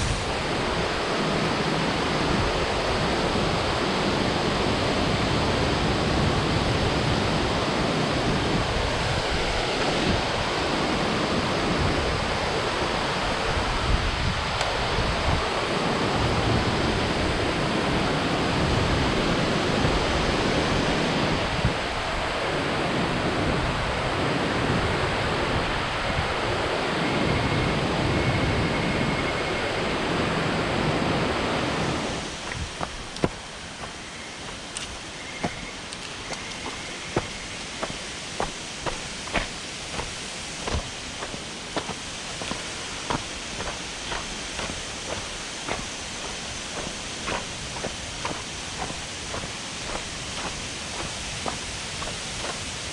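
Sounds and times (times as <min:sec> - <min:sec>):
waterfall rushing: 0:00.0 - 0:13.8, 0:31.7 - 0:52.9.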